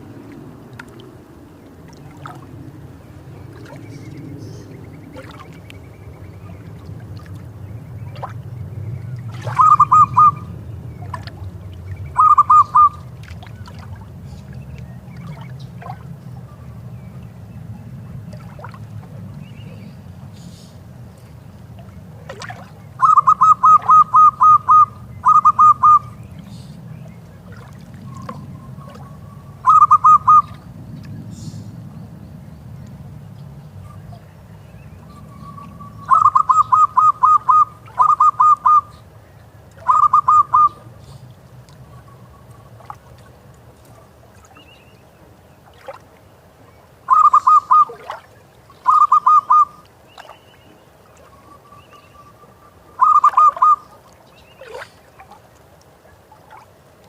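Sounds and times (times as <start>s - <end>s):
faint low rumble: 0.0s - 53.1s
dove cooing: 9.4s - 10.5s, 12.1s - 13.0s, 23.0s - 26.2s, 28.1s - 30.6s, 35.4s - 39.0s, 39.8s - 41.2s, 47.1s - 48.0s, 48.8s - 49.8s, 52.9s - 53.9s.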